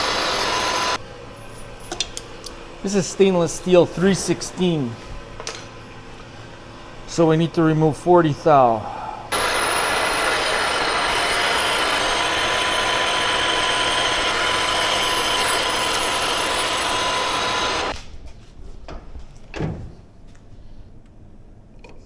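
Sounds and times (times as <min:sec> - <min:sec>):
lathe running: 0:00.0 - 0:01.0, 0:09.3 - 0:18.0
lathe tool screeching on metal: 0:00.0 - 0:01.0, 0:09.3 - 0:17.9.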